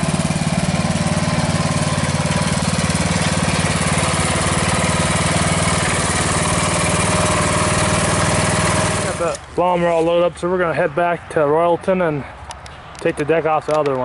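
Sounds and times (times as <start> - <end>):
lawn mower engine running: 0.0 - 10.2.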